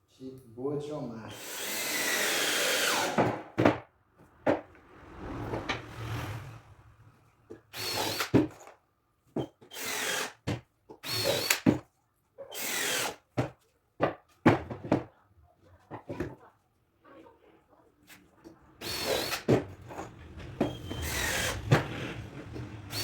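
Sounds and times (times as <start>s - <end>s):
power drill driving screws: 1.3s - 3.3s, 7.7s - 8.7s, 9.7s - 10.4s, 11.0s - 11.7s, 12.5s - 13.2s, 18.8s - 23.0s.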